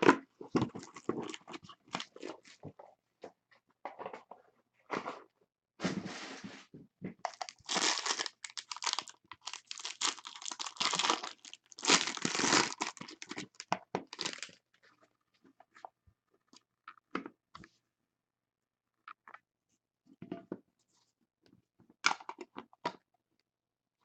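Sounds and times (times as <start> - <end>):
plastic wrapping tearing and crinkling: 7.3 - 14.6.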